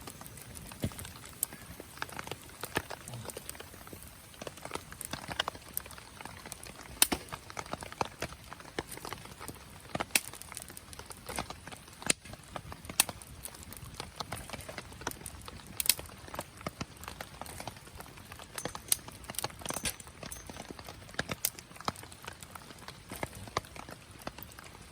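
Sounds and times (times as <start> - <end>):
low hiss: 0.0 - 14.0
fire pops and snaps: 0.0 - 24.9
wood fire crackling: 0.0 - 24.9.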